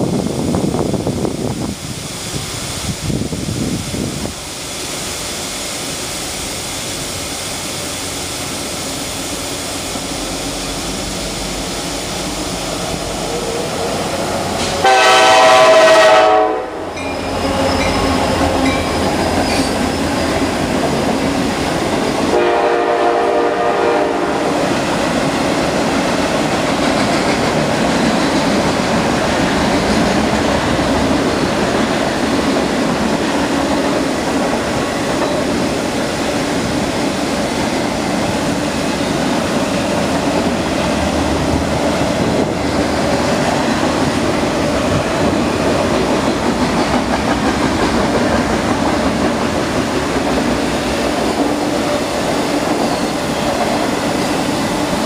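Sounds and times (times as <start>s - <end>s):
wind buffeting microphone: 0.0s - 4.5s
train rumbling past: 0.0s - 55.0s
locomotive horn blasts: 14.6s - 18.7s, 22.3s - 24.6s.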